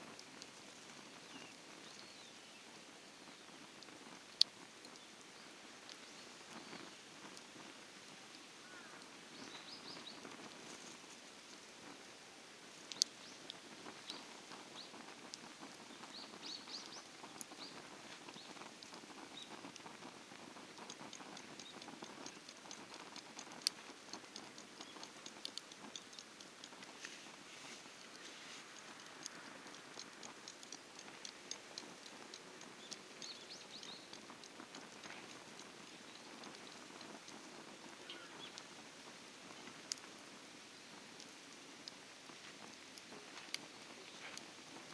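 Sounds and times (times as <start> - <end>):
faint steady crackling: 0.0 - 44.9
small birds chirping: 0.2 - 7.4, 8.6 - 10.9, 12.9 - 41.1, 41.8 - 44.9
faint chirps: 37.9 - 38.6.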